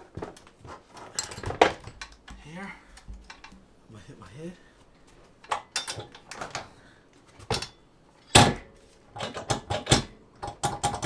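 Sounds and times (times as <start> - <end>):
metal clanks and knocks: 0.0 - 3.7, 5.4 - 6.7, 7.4 - 11.0.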